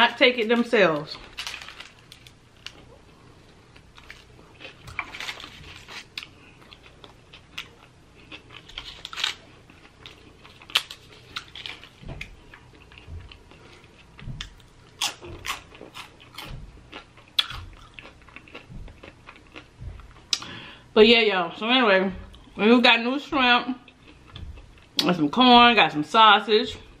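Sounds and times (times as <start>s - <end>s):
person chewing crunchy food: 1.3s - 20.9s, 23.8s - 25.0s.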